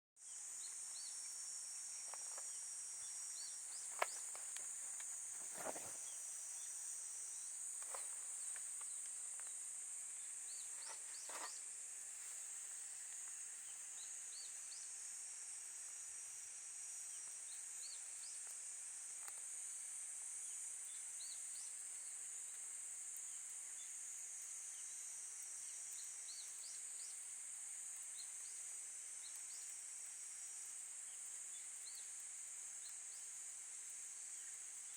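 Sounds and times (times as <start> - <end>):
insects chorus: 0.2 - 34.9.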